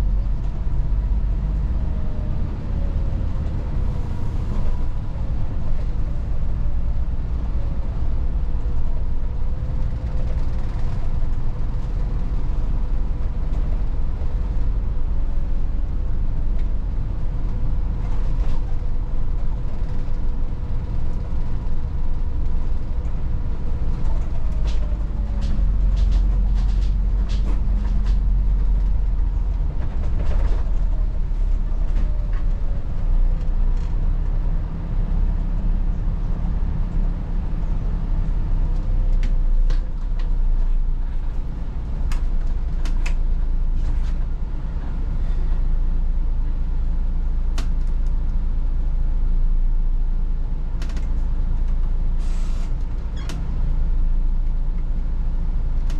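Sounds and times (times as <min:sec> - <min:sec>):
bus engine rumble: 0:00.0 - 0:55.9
interior clicks and rattles: 0:22.5 - 0:34.0.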